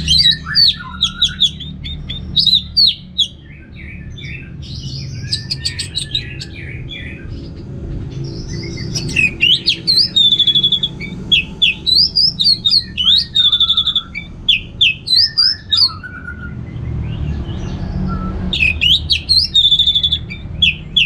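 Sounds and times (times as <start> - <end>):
bird singing whistled notes: 0.0 - 3.5, 8.6 - 16.4, 18.1 - 21.0
steady low hum: 0.0 - 15.7.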